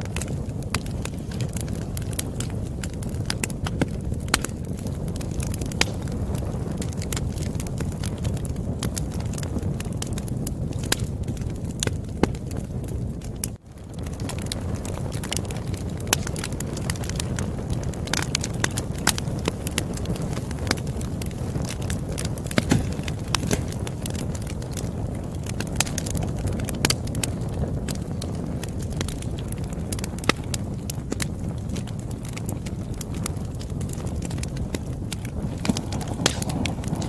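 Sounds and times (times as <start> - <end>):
wood popping and snapping: 0.0 - 6.1, 13.2 - 26.2, 26.8 - 37.0
campfire burning: 0.0 - 37.0.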